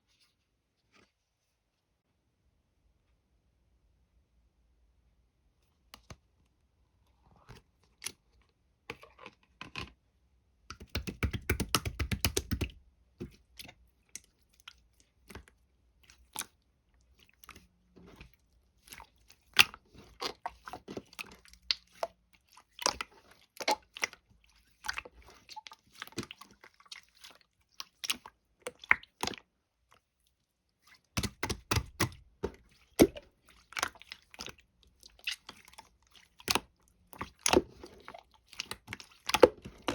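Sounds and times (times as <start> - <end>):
slime squished by hand: 30.8 - 39.9.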